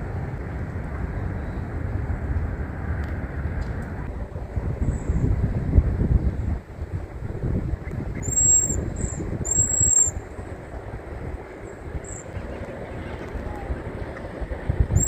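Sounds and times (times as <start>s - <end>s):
wind rumbling on microphone: 0.0s - 15.0s
birds whistling calls: 8.2s - 10.2s.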